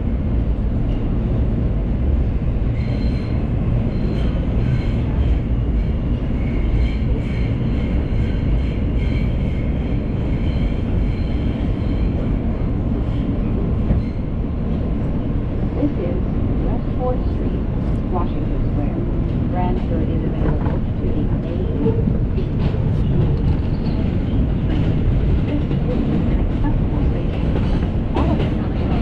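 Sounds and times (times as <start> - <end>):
subway train rumbling on track: 0.0 - 29.0.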